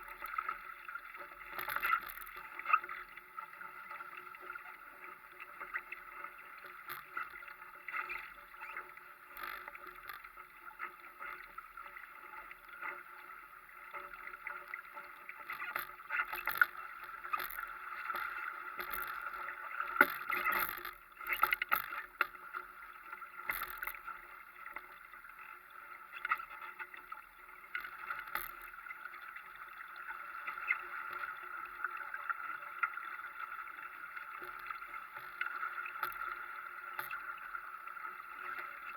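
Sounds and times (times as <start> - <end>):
faint steady hum: 0.0 - 38.9
water splashing along boat hull: 5.4 - 12.8, 14.1 - 25.1.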